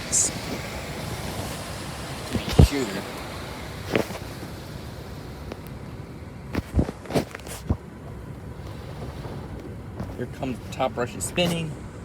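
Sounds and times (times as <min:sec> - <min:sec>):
car wash spray hiss: 0:00.0 - 0:06.3, 0:08.4 - 0:12.0
sharp knocks or pops: 0:02.4 - 0:02.8.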